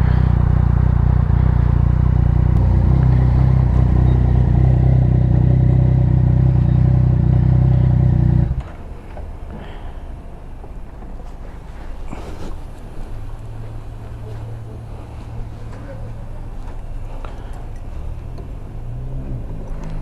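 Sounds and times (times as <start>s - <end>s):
motorcycle engine running: 0.0s - 8.8s.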